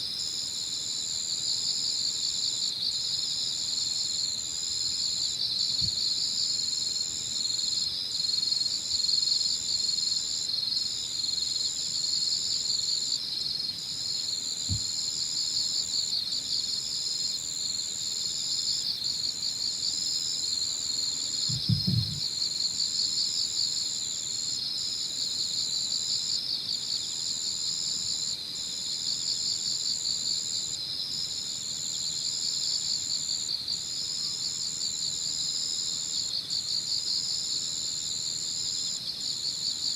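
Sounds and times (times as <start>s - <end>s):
insect chorus: 0.0s - 39.9s
high cricket trill: 11.2s - 26.4s
faint low bumps: 21.4s - 22.3s.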